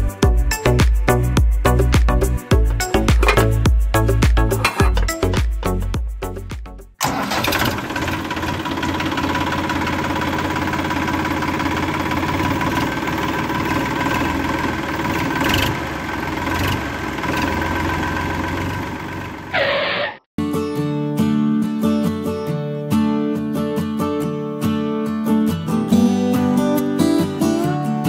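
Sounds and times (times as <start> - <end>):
background music: 0.0 - 7.0
tractor engine knocking: 3.1 - 3.6, 7.0 - 19.6.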